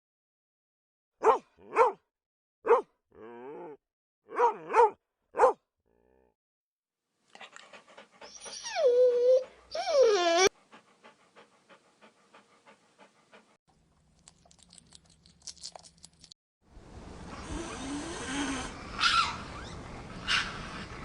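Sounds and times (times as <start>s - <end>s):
dog panting: 7.3s - 13.6s
dog whining: 8.0s - 11.2s, 18.5s - 20.9s.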